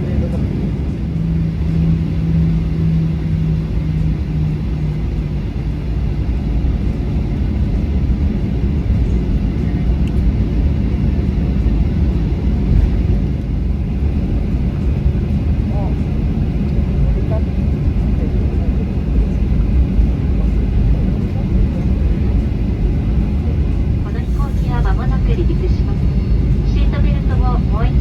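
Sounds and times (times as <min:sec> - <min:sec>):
jet cabin engine rumble: 0:00.0 - 0:28.0
low hum: 0:19.3 - 0:28.0.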